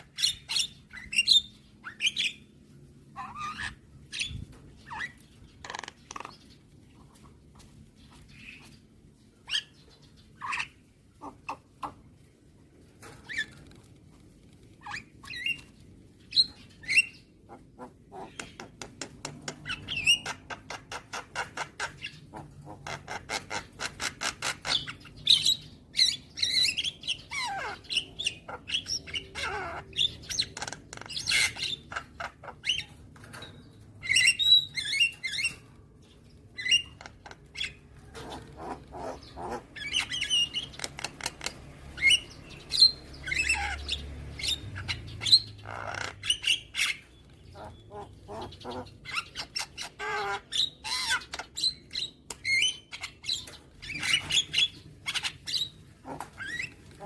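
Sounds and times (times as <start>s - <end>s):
bird chattering and squawking: 0.0s - 7.4s, 8.1s - 12.3s, 14.6s - 57.0s.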